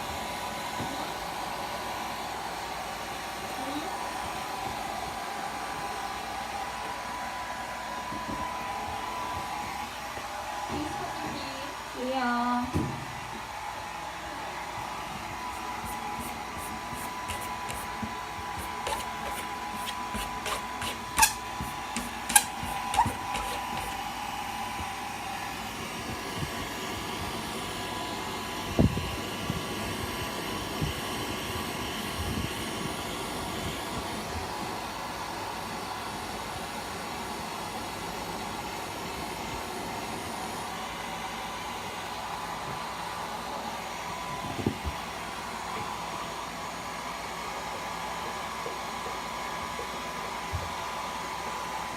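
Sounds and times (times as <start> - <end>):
hair dryer running: 0.0 - 51.9
cat scratching at door: 15.5 - 24.0.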